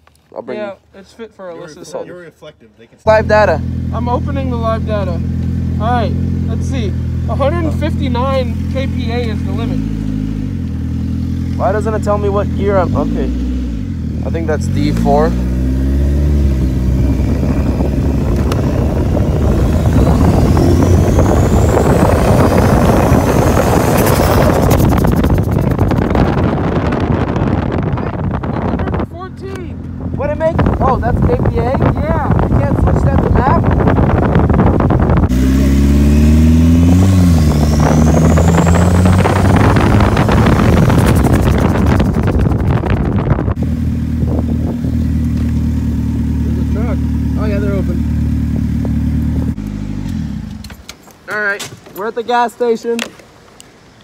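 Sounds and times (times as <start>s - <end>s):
kart engine running: 3.1s - 28.9s, 34.2s - 50.8s
high turbo whine: 3.1s - 51.0s
wind noise: 11.6s - 46.6s
rapid fluttering: 19.0s - 26.6s, 38.4s - 43.3s.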